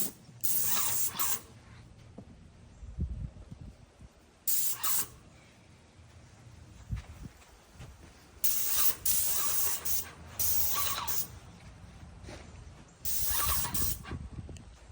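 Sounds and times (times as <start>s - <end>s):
paint sprayer hissing: 0.0s - 1.5s, 4.5s - 5.2s, 8.4s - 11.4s, 13.0s - 14.0s.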